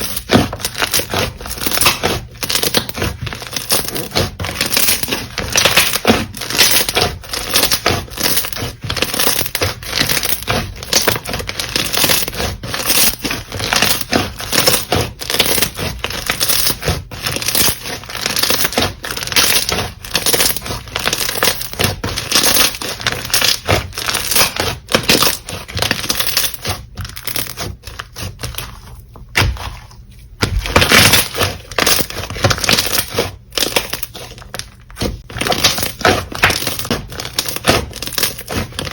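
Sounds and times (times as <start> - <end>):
slime crackling and popping: 0.0 - 28.6.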